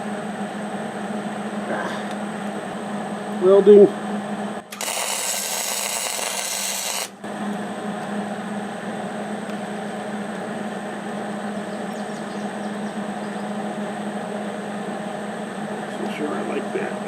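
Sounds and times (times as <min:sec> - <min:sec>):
steady low hum: 0:00.0 - 0:17.0
welder arc crackling: 0:04.7 - 0:07.2.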